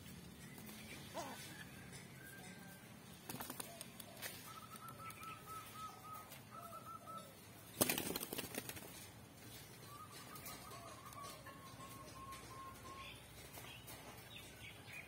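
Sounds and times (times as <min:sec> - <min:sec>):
wings flapping: 0:03.3 - 0:05.2, 0:07.7 - 0:09.1
pigeon whistled calls: 0:04.4 - 0:07.3, 0:09.8 - 0:13.3.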